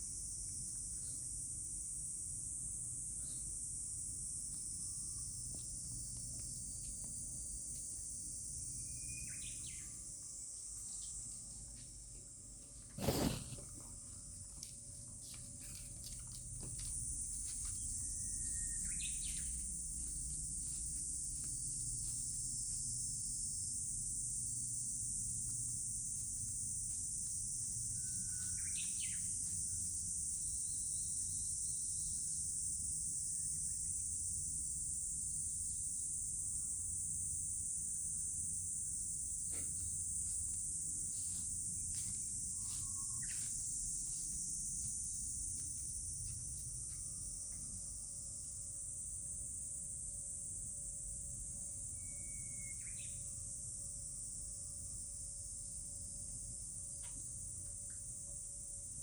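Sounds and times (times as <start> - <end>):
high-pitched insect drone: 0.0 - 11.4, 16.8 - 59.0
bird chirps: 8.9 - 10.0, 18.4 - 19.6, 28.1 - 29.3, 52.0 - 53.2.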